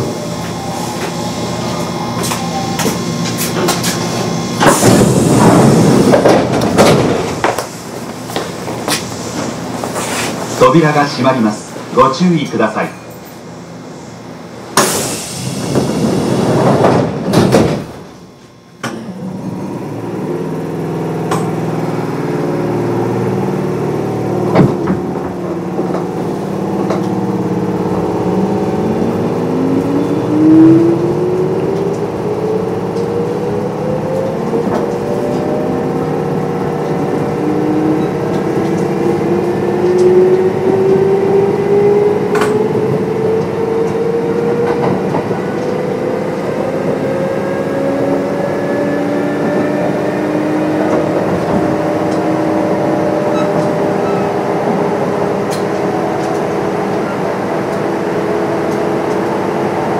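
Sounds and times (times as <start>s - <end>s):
electric train motor whine: 0.0s - 7.4s
train doors closing with hiss: 0.0s - 11.0s, 13.1s - 19.4s, 24.4s - 27.2s.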